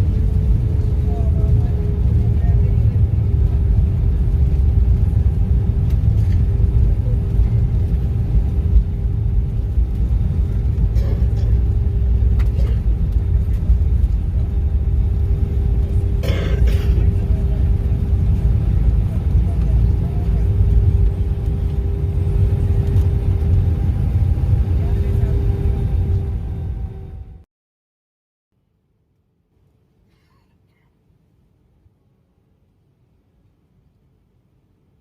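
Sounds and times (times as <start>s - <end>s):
steady hum: 0.0s - 27.3s
airplane cabin rumble: 0.0s - 27.5s.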